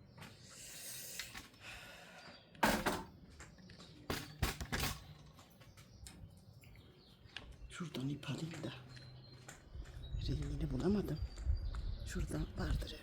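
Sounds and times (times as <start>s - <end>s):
objects knocking: 2.6s - 5.9s.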